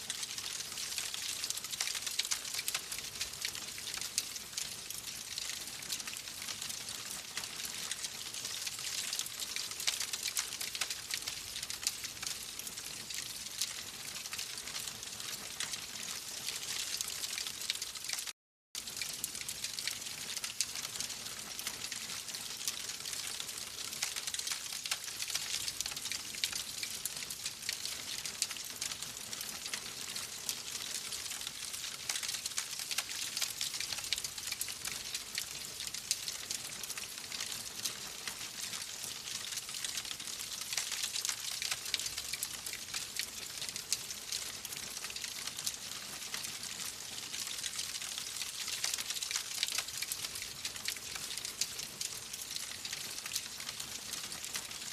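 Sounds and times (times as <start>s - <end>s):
wood fire crackling: 0.1s - 12.9s, 18.8s - 46.4s.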